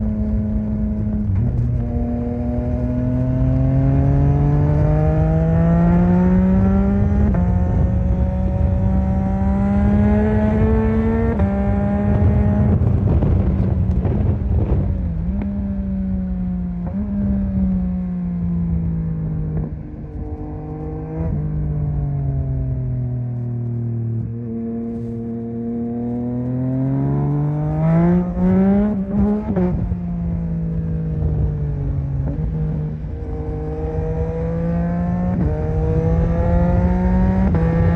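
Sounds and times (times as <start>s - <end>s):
motorcycle engine accelerating: 0.0s - 37.9s
motorcycle downshifting: 0.1s - 37.9s.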